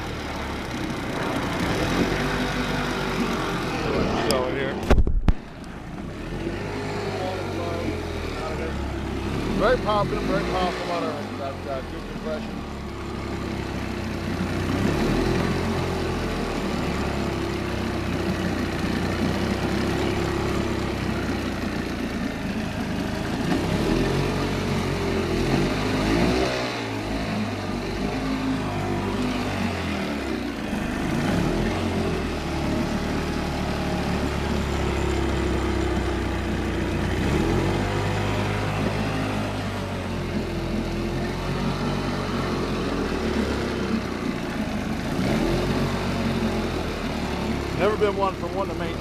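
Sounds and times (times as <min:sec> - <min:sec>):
outboard engine running: 0:00.0 - 0:49.0.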